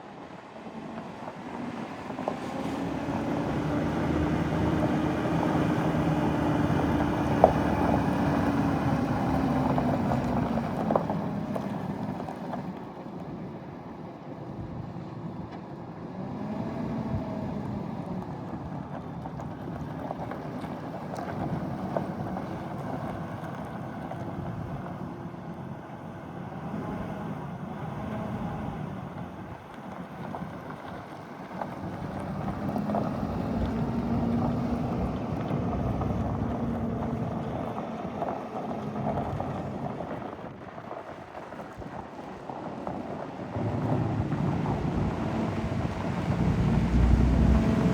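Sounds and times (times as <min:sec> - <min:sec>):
wind noise on microphone: 0:31.6 - 0:47.9
truck engine running: 0:42.1 - 0:47.9.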